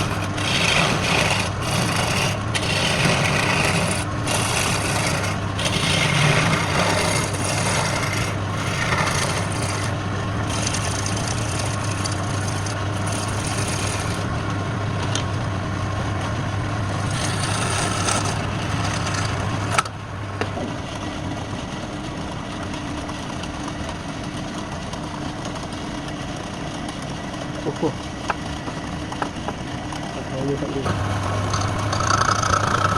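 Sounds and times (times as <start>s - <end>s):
tool scraping spinning wood: 0.0s - 14.5s, 16.8s - 20.0s
wood lathe motor running: 0.0s - 14.5s, 16.9s - 19.9s, 30.8s - 32.9s.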